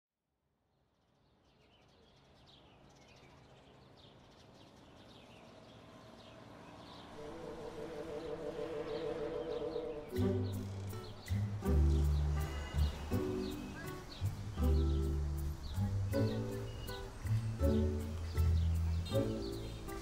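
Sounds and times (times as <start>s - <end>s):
birds chirping: 1.1s - 20.0s
deep low tones: 10.1s - 20.0s.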